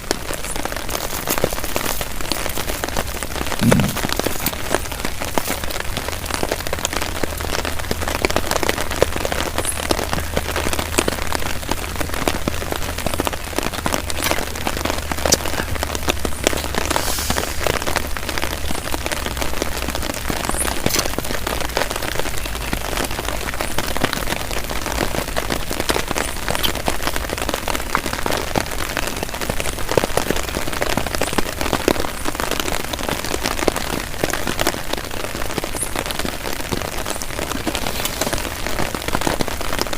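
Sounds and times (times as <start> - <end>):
heavy rain on tarp: 0.0 - 39.9.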